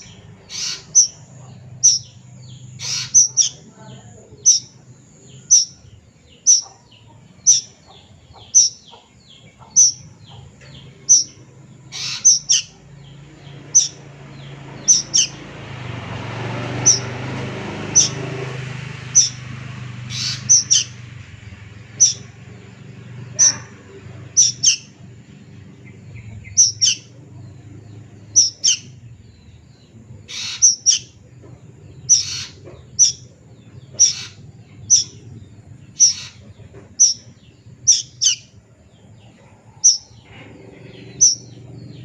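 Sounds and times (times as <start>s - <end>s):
cuckoo calling: 0.0s - 15.5s
steady low hum: 0.0s - 42.0s.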